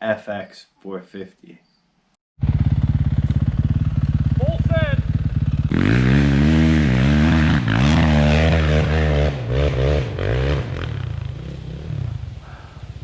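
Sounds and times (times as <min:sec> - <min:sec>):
dirt bike engine revving: 0:02.4 - 0:12.3.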